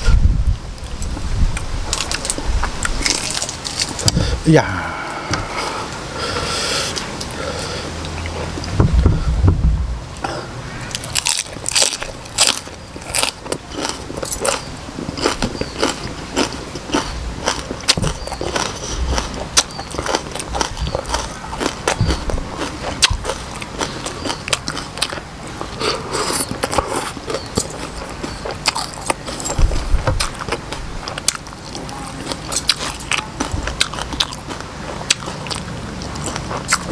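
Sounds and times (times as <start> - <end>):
crunchy chewing: 0.8 - 8.7, 10.2 - 36.9
wet mouth sounds: 15.2 - 36.9.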